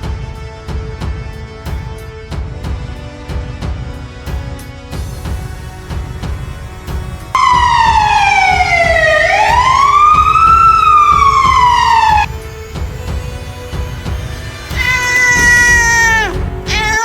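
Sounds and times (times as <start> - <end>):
background music: 0.0 - 17.0
siren wailing: 7.4 - 12.3.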